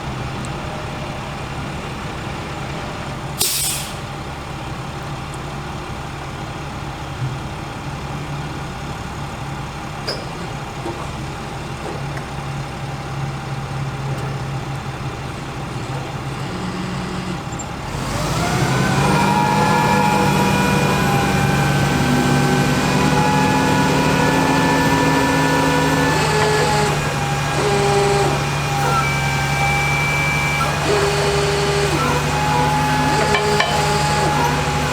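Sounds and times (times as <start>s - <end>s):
diesel engine running: 0.0s - 34.9s
engine whine: 14.1s - 34.9s.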